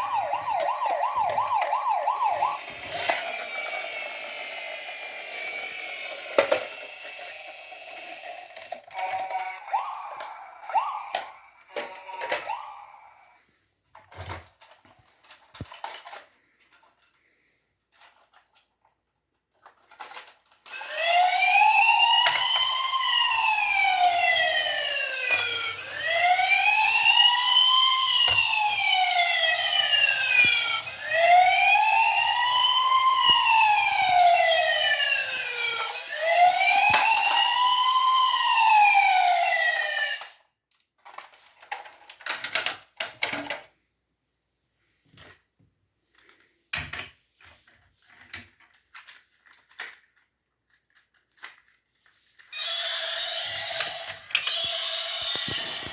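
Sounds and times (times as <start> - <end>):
toy robot electronic siren wailing: 0.0 - 13.4, 20.7 - 40.4, 52.5 - 55.9.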